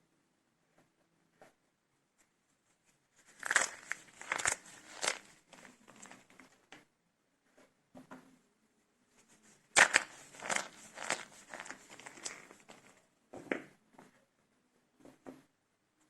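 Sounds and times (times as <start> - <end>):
dry soap crunching and crackling: 3.2 - 6.6, 9.7 - 13.0
sharp crack: 9.8 - 12.5.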